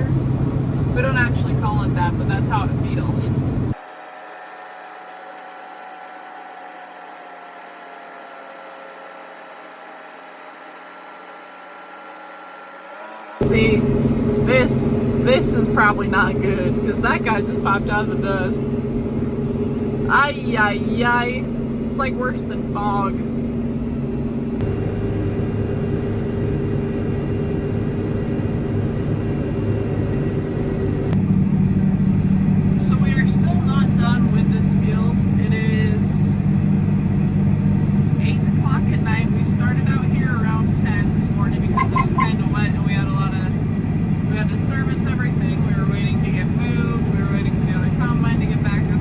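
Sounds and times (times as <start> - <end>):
faint machine hum: 0.0 - 49.0
tractor engine running: 0.0 - 49.0
held tones: 41.6 - 42.5.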